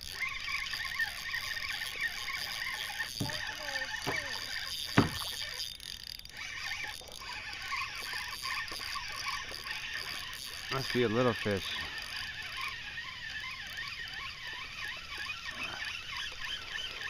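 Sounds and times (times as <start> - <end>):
birds chirping: 8.6 - 17.0.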